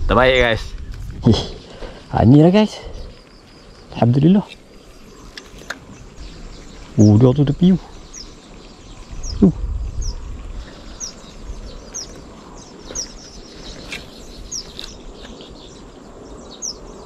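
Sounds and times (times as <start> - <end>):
bird chirping: 0.1 - 17.0
low falling rumble: 6.0 - 12.8.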